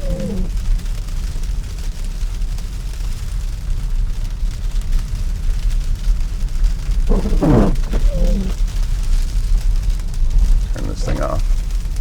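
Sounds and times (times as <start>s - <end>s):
road and tyre noise in car cabin: 7.1s - 8.6s, 10.2s - 11.7s
man murmuring: 10.7s - 11.4s.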